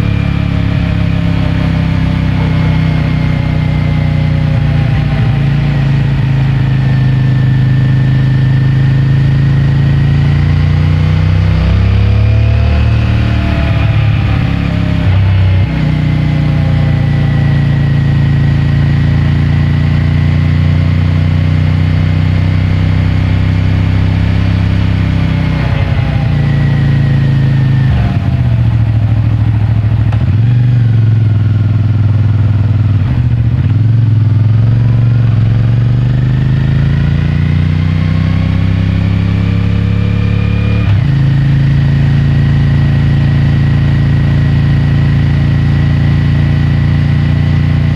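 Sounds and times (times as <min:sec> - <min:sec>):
motorcycle engine changing gear: 0:00.0 - 0:31.8
road and wind noise: 0:00.0 - 0:47.9.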